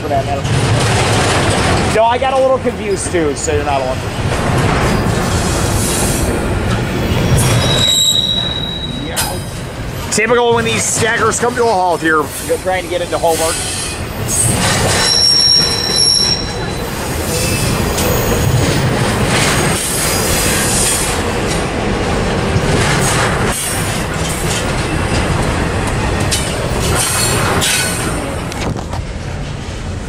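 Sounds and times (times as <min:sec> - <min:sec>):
freight train wheels rumbling: 0:00.0 - 0:30.0
high wheel squeal: 0:07.0 - 0:10.2, 0:11.8 - 0:18.6.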